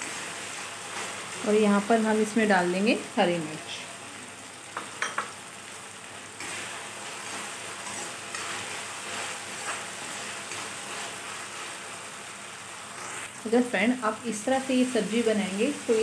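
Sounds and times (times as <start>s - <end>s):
masala sizzling in hot oil: 0.0s - 16.0s
metal spoon clinking on pan: 4.8s - 5.4s.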